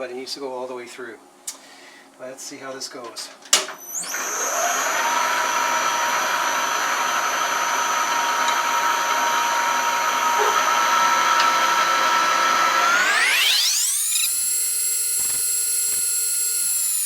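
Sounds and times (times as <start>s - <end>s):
machine tool whine: 3.8s - 17.0s.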